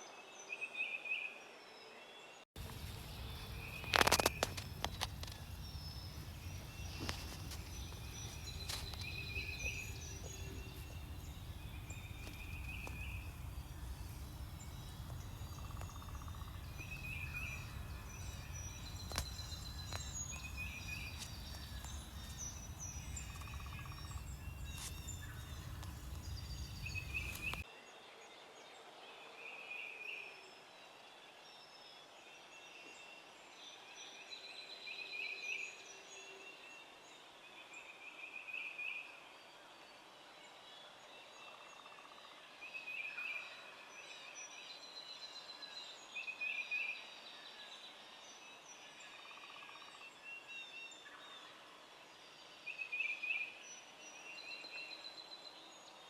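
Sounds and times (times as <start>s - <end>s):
distant turkey gobbling: 2.6s - 27.6s
songbirds chorus: 2.6s - 27.6s
wind rumble on microphone: 2.6s - 27.6s.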